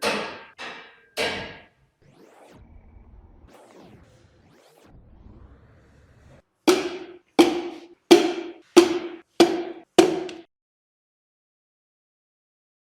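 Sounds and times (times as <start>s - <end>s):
sharp percussive hits with ring: 6.7s - 10.5s.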